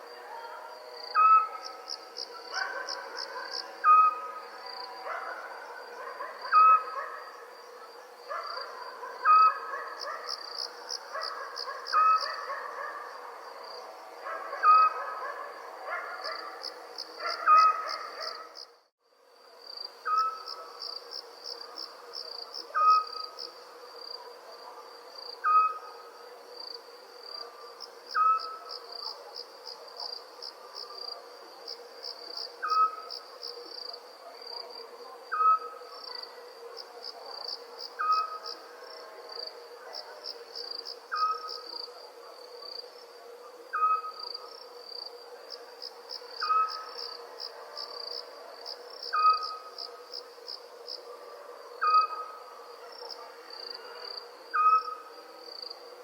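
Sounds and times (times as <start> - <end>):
crickets trilling: 0.0 - 56.0.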